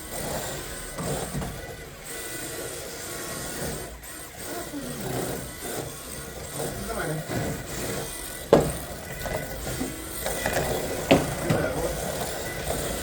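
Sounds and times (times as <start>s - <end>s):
toy car electric motors whining: 0.0s - 13.0s.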